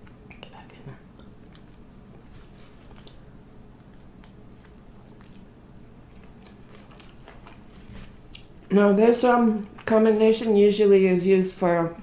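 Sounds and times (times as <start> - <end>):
wet mouth clicks and smacks: 1.1 - 2.1, 3.8 - 5.5
person chewing: 1.1 - 8.7, 9.5 - 10.0.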